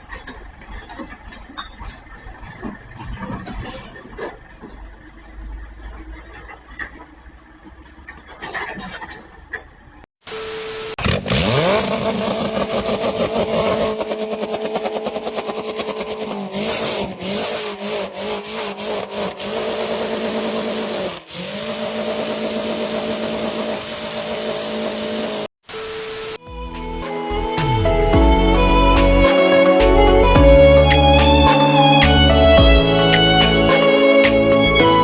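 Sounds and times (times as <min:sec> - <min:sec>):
motor running fast: 0:11.3 - 0:25.5.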